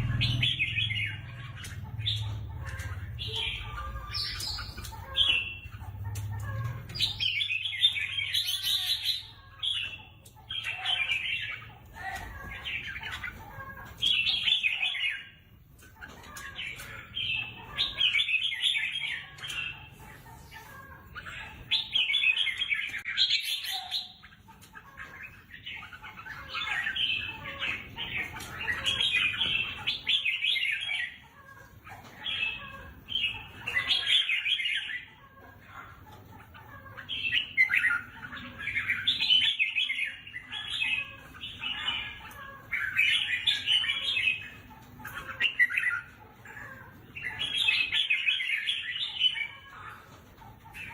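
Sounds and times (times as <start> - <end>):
bird singing warbling phrases: 0.0 - 50.9.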